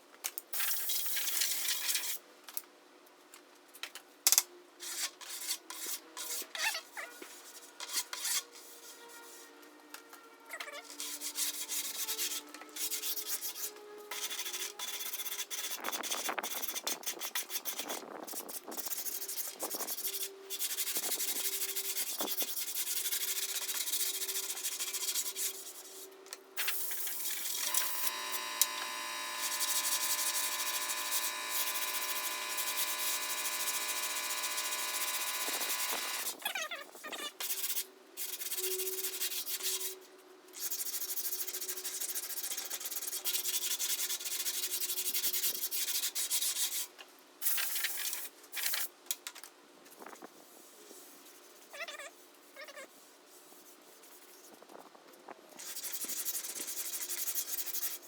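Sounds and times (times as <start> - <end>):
sandpaper rubbing on filler: 11.0 - 26.0
steady multi-pitch hum: 26.6 - 36.4.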